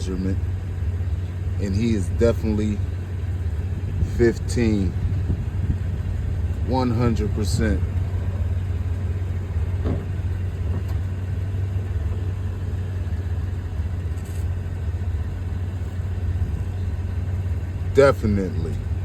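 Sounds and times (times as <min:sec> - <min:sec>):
wind buffeting microphone: 0:03.2 - 0:11.2.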